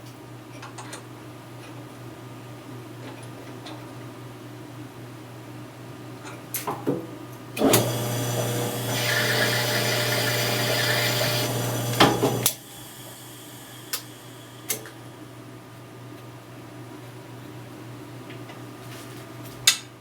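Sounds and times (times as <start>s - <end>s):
harsh cutting or grinding: 7.6s - 12.6s
electric power tool running: 7.6s - 15.0s.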